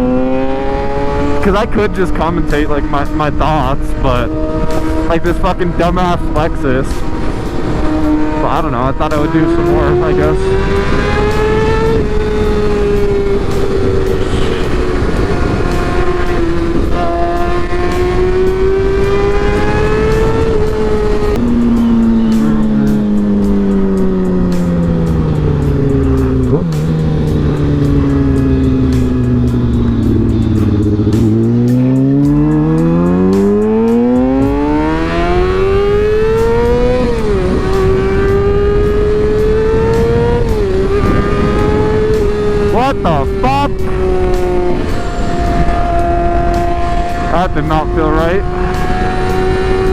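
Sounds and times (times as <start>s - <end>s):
motorcycle engine: 0.0s - 49.9s.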